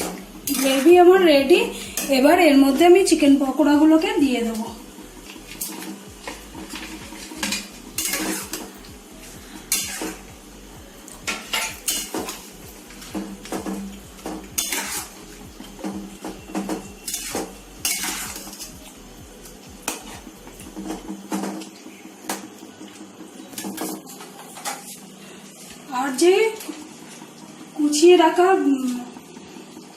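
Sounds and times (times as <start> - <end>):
spoon scraping and clacking a pan: 0.0 - 0.9, 5.5 - 8.8, 9.7 - 10.2, 11.3 - 18.7.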